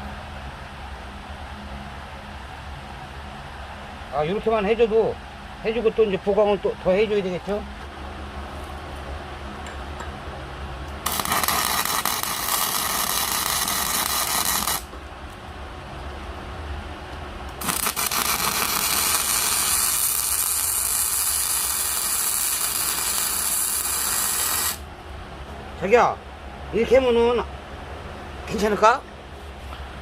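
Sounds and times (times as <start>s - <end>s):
steady low hum: 0.0s - 30.0s
welding arc crackling and hissing: 11.0s - 14.9s, 17.5s - 24.9s.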